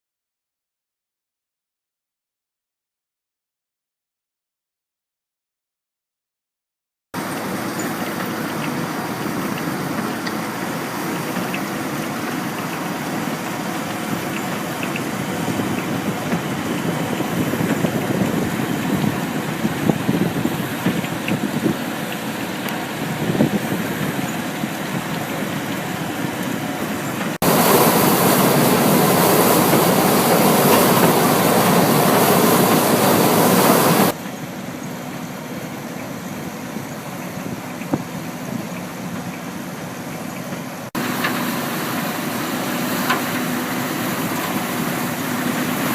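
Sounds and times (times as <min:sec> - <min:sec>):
trommel screen machine running: 0:25.2 - 0:34.2.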